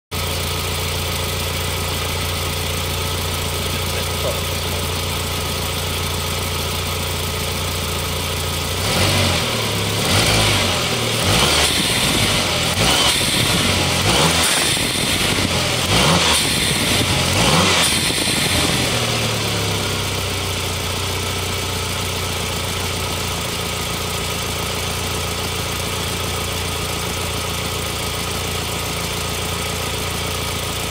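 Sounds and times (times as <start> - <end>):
turbocharged engine revving: 0.2 - 20.4.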